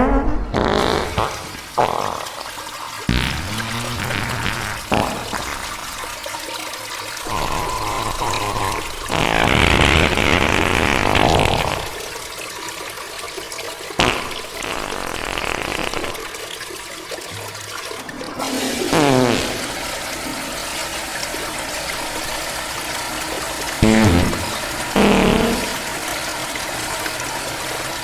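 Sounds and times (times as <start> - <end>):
reverberant toilet flush: 0.0 - 28.0.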